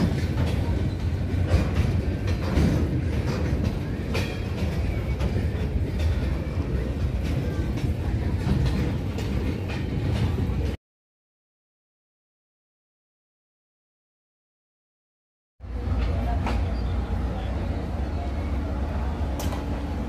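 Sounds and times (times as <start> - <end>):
freight train rumbling past: 0.0 - 10.8, 15.6 - 20.0.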